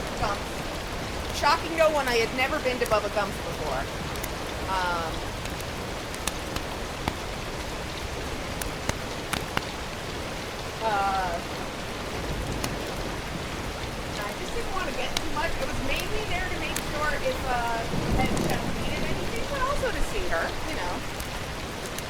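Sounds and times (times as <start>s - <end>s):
food sizzling: 0.0s - 22.0s
sharp cooking pops: 4.1s - 7.8s, 8.4s - 9.8s.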